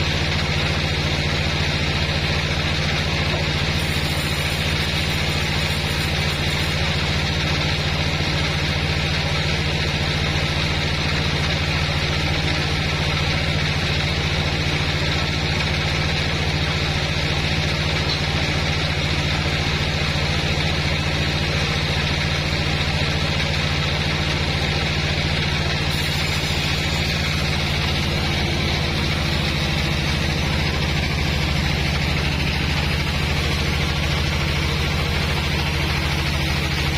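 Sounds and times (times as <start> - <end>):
bandsaw running: 0.0 - 36.9.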